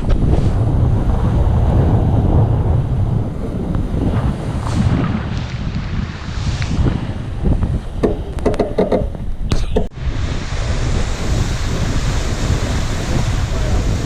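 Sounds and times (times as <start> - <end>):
wind buffeting microphone: 0.0 - 14.0
clicks and knocks: 8.0 - 9.9
water rushing along hull: 9.9 - 14.0.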